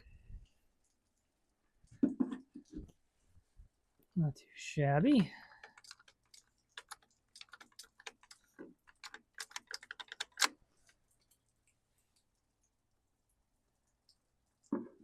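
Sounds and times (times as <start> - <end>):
small parts clicking and tapping: 5.2 - 12.3.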